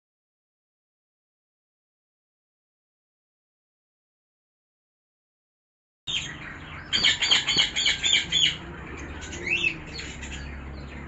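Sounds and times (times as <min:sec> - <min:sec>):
birds chirping: 0:06.1 - 0:11.0
swooping bird call: 0:06.2 - 0:08.6.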